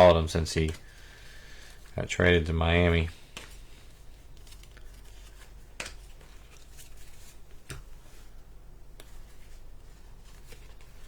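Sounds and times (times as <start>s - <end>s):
low steady hum: 0.0s - 11.0s
cards being flipped: 3.3s - 8.0s.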